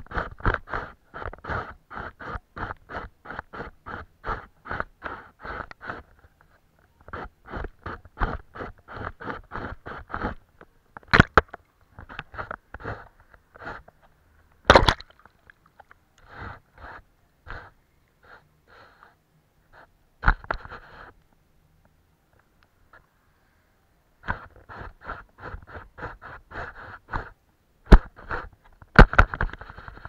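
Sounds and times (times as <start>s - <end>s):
paintbrush strokes on paper: 0.0s - 10.5s, 12.0s - 14.2s, 16.2s - 21.2s, 24.2s - 27.4s, 28.0s - 28.6s.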